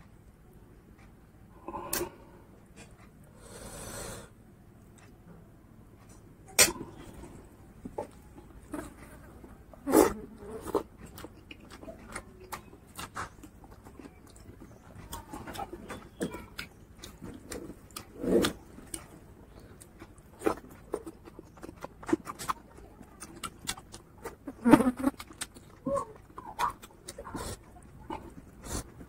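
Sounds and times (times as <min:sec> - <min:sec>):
fingers squelching food: 0:10.8 - 0:29.0
wet chewing and lip smacks: 0:10.8 - 0:29.0.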